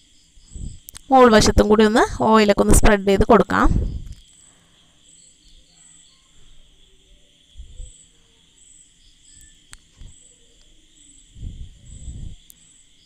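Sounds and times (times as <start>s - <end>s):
faint high chirp: 3.9s - 13.0s.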